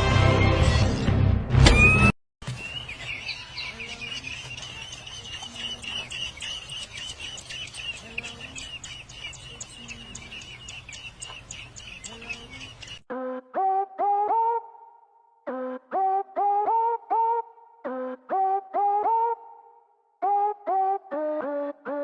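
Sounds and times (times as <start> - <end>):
birds chirping: 2.4 - 13.1.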